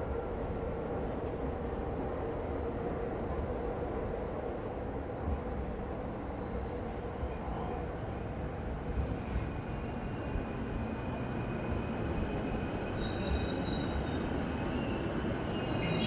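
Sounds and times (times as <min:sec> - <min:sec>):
train wheels squealing: 0:09.0 - 0:16.0.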